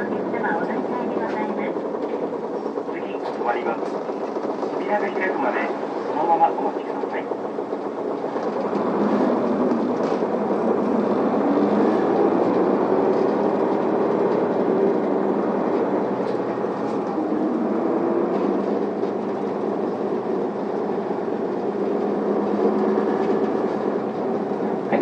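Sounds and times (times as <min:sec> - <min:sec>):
bus engine running: 0:00.0 - 0:25.0
road noise: 0:05.6 - 0:25.0.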